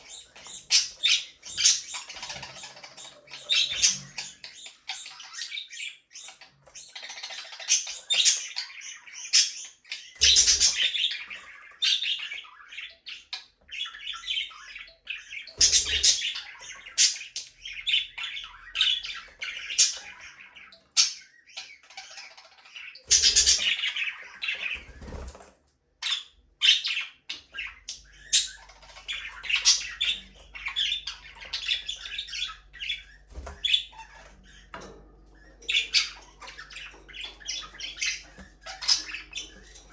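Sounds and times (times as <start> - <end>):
budgerigars chirping and squawking: 0.0 - 39.9
wings fluttering: 24.6 - 25.6.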